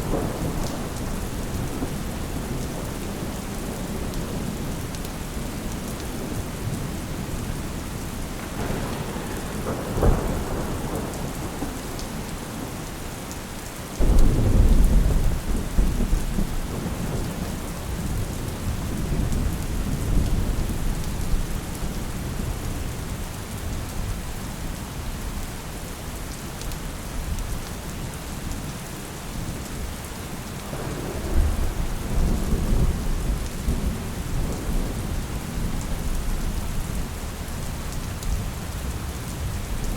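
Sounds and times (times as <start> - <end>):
thunder rumbling: 0.0 - 13.0, 14.0 - 22.0, 30.6 - 39.9
steady rain falling: 0.0 - 39.9
sharp thunder crack: 8.4 - 12.2, 14.0 - 18.2, 30.7 - 35.2.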